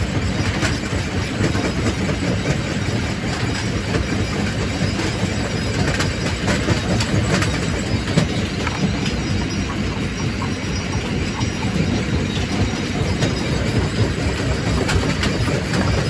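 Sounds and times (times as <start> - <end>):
rock crusher rumbling: 3.0 - 16.0.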